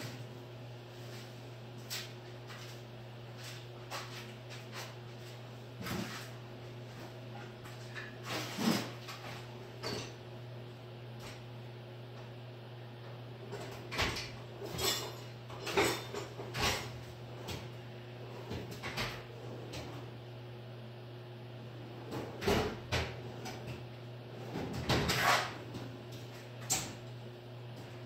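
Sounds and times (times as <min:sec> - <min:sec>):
tools and metal parts clanking: 0:14.0 - 0:16.9.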